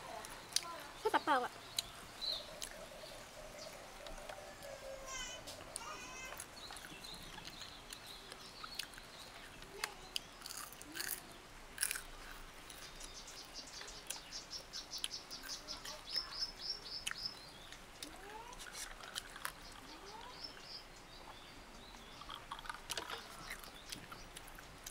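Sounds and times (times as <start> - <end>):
birds chirping: 0.0 - 24.9
crunching chewing clicks: 1.7 - 2.8, 5.5 - 13.2, 16.9 - 20.3, 21.9 - 24.9.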